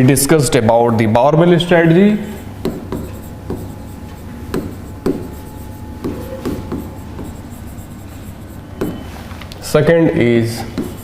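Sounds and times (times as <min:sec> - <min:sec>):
pen scratching strokes: 0:02.4 - 0:09.4, 0:10.6 - 0:11.0.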